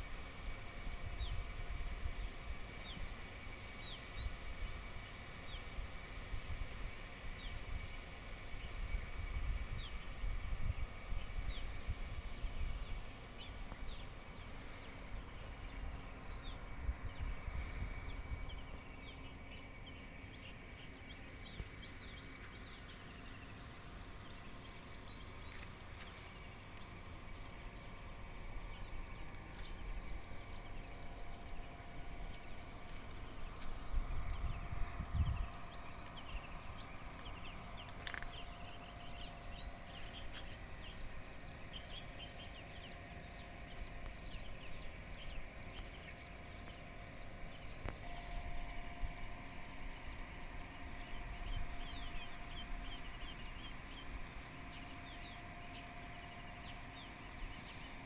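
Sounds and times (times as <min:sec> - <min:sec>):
wind rumble on microphone: 0:05.5 - 0:19.6, 0:29.7 - 0:41.3
small birds chirping: 0:07.4 - 0:58.0.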